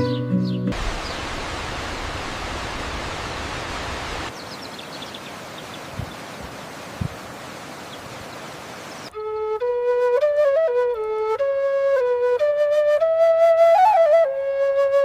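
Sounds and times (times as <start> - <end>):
steady outdoor rushing noise: 0.7 - 9.1.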